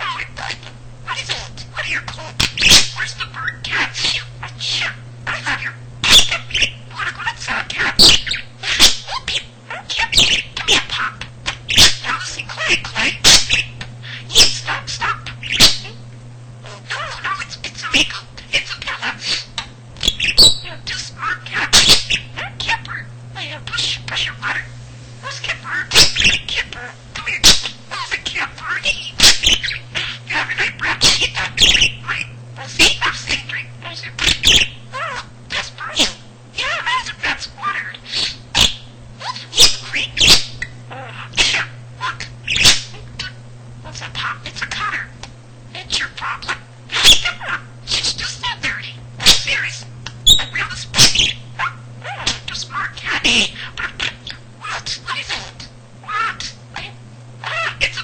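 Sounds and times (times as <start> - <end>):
budgerigar chirping and clicking: 0.0 - 15.9, 17.0 - 23.0, 25.4 - 43.4, 46.0 - 56.8
steady low hum: 0.0 - 58.0.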